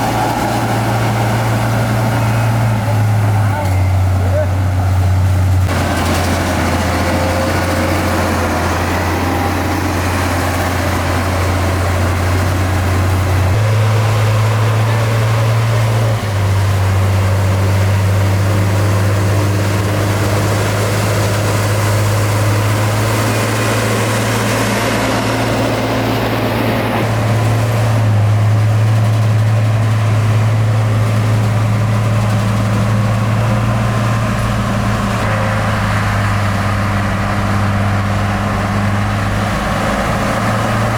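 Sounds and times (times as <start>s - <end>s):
heavy diesel engine humming: 0.0s - 40.9s.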